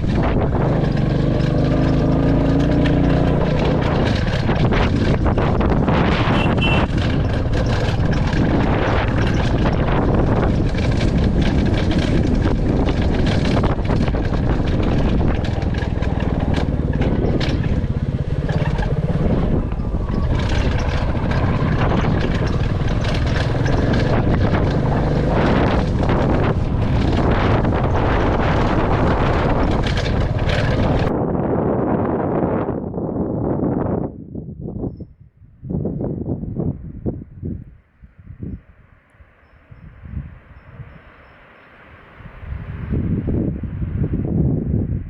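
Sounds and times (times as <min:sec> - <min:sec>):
motorcycle engine running: 0:00.0 - 0:31.1
short knocks and rattles: 0:00.0 - 0:31.1
wind buffeting microphone: 0:00.0 - 0:45.0.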